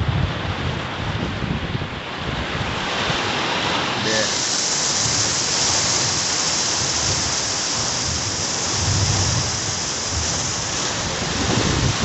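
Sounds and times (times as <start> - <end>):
low thunder rumble: 0.0 - 3.3, 5.0 - 12.0
heavy rain pouring: 0.0 - 12.0.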